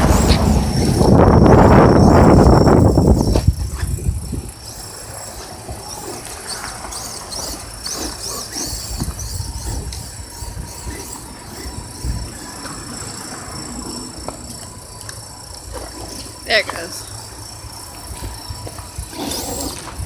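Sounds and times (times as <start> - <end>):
electric motors whining: 0.0 - 20.0.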